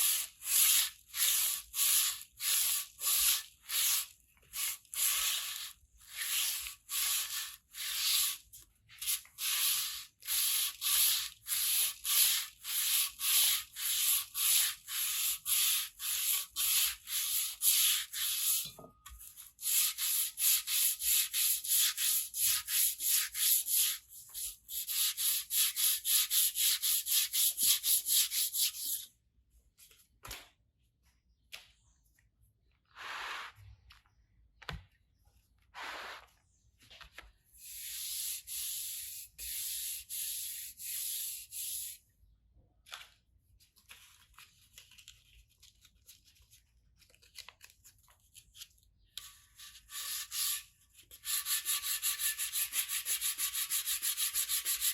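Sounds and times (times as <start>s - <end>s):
hand sanding metal: 9.0s - 18.6s, 19.6s - 29.1s, 49.9s - 54.9s.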